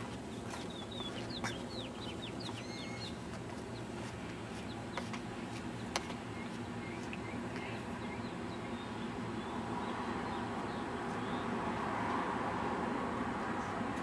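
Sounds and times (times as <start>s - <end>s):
high sliding bird chirps: 0.3s - 3.2s.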